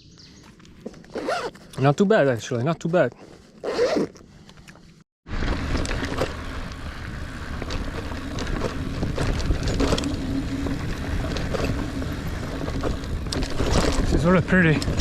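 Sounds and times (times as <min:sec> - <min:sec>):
bike clicks and rattles: 0:04.2 - 0:15.0
bike tires rumbling on dirt: 0:05.3 - 0:15.0.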